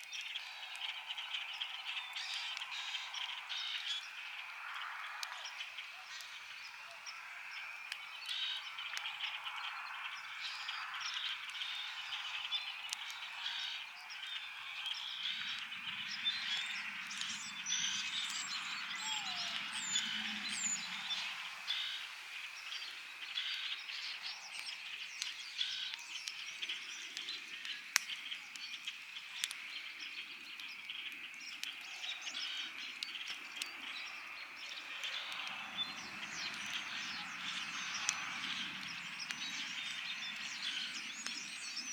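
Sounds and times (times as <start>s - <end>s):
campfire crackling and popping: 0.0s - 41.9s
frog chorus: 0.4s - 24.9s, 31.3s - 41.9s
bird chirps: 5.5s - 27.8s.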